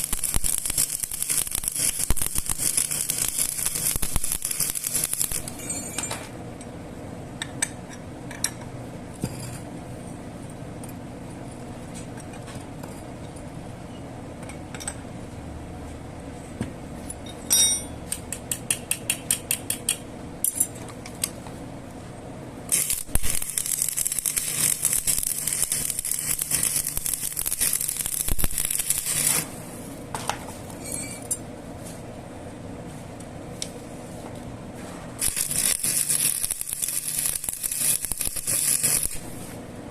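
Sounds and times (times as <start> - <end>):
steady machine hum: 0.0 - 11.8, 19.8 - 39.9.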